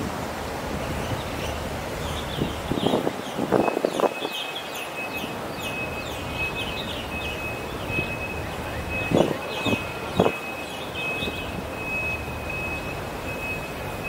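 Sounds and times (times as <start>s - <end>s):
city background noise: 0.0s - 14.0s
small birds chirping: 0.8s - 14.0s.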